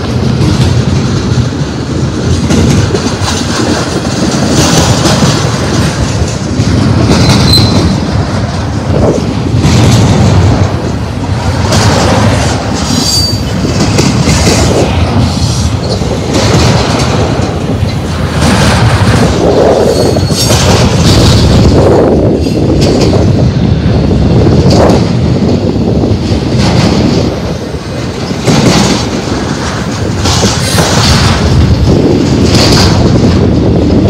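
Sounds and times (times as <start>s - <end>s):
rumble of train wheels on rail: 0.0s - 34.0s
high-pitched wheel squeals: 7.2s - 8.0s, 12.9s - 13.5s.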